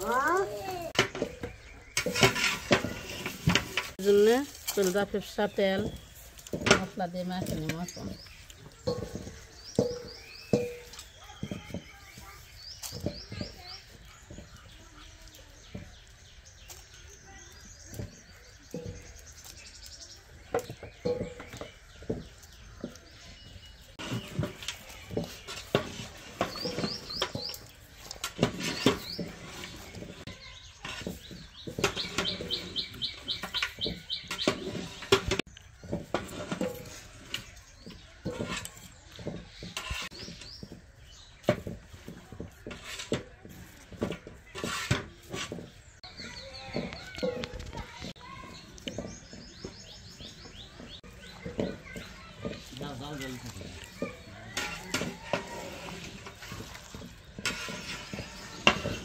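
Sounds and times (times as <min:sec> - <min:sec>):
birds chirping: 0:00.0 - 0:59.0
cooking utensils knocking and clicking: 0:00.0 - 0:59.0.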